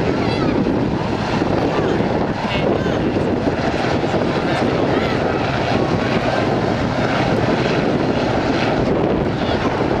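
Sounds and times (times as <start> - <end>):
aircraft engine noise: 0.0 - 10.0.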